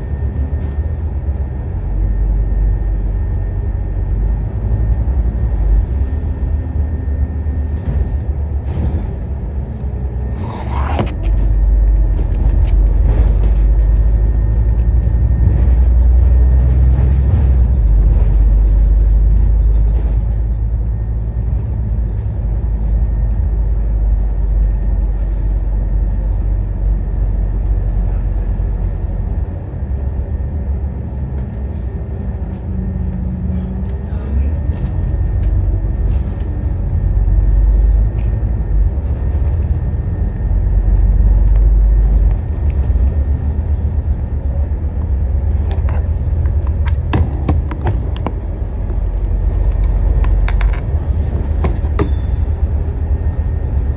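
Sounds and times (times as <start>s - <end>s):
bus diesel engine rumbling: 0.0s - 53.9s
rattles and clicks: 7.8s - 19.0s, 45.0s - 53.9s.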